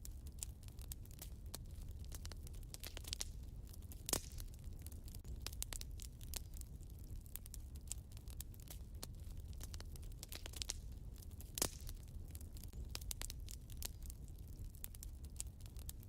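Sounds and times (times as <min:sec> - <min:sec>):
fire crackling and snapping: 0:00.0 - 0:16.0
low rumble of flames: 0:00.0 - 0:16.0.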